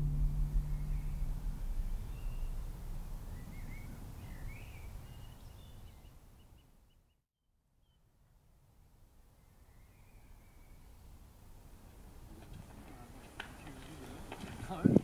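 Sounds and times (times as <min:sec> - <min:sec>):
low background rumble: 0:00.0 - 0:05.7
small birds chirping: 0:00.6 - 0:07.2.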